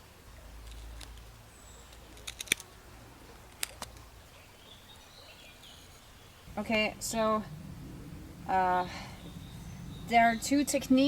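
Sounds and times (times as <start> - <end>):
low rumble: 6.4 - 11.0.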